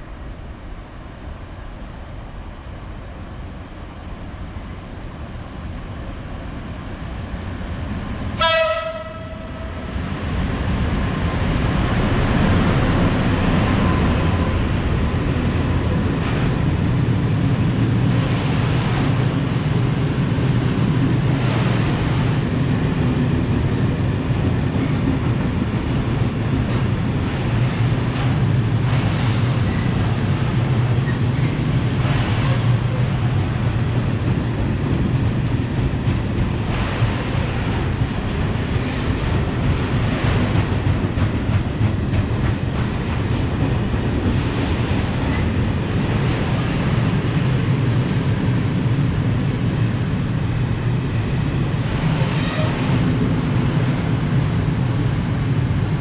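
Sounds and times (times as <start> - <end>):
train wheels rumbling on rails: 0.0 - 56.0
train horn blast: 8.4 - 9.8, 52.4 - 52.9
rail clacks: 8.4 - 55.9.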